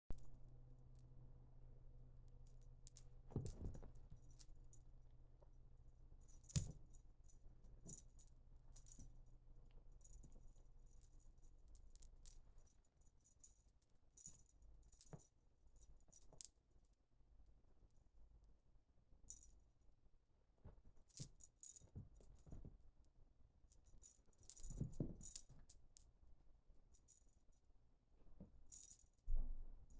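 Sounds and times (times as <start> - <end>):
thump: 29.3 - 29.8.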